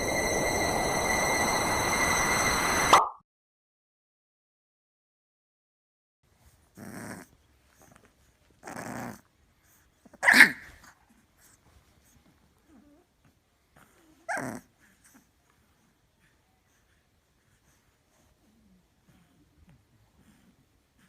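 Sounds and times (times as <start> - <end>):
dog growling: 6.7 - 8.0, 8.6 - 9.3, 13.8 - 15.3
dog barking: 10.2 - 10.7.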